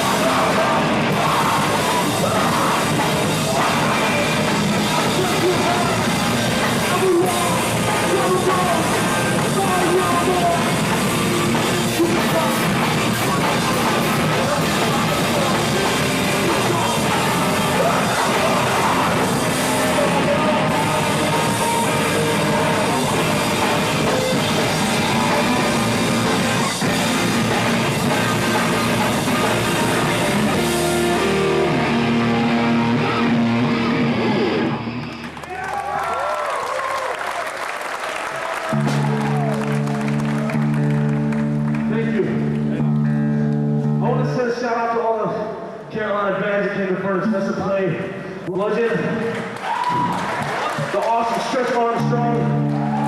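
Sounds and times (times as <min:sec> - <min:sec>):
shouted vocals: 0:00.0 - 0:10.8, 0:11.7 - 0:33.6, 0:35.4 - 0:37.5, 0:38.3 - 0:40.8, 0:49.6 - 0:53.0
live rock band playing: 0:00.0 - 0:35.4, 0:38.7 - 0:44.3, 0:50.7 - 0:53.0
ringing guitar notes: 0:38.7 - 0:44.4, 0:52.0 - 0:53.0.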